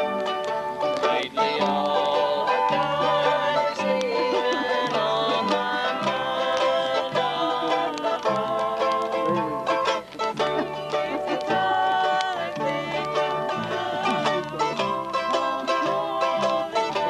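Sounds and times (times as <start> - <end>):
plucked strings: 0.0 - 17.0.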